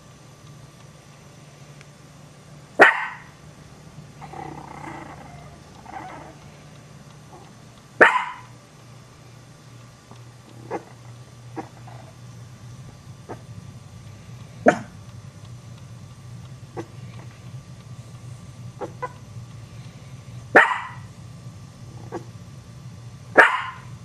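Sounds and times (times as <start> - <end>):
small dogs barking: 2.7 - 3.4, 4.1 - 8.6, 10.5 - 12.2, 13.2 - 13.5, 14.6 - 15.0, 16.7 - 17.0, 18.8 - 19.2, 20.5 - 21.1, 22.0 - 22.3, 23.3 - 24.0
dog growling: 4.2 - 6.6, 7.3 - 7.6, 10.6 - 12.2, 14.6 - 15.0, 16.7 - 17.3, 18.8 - 19.2, 21.9 - 22.3.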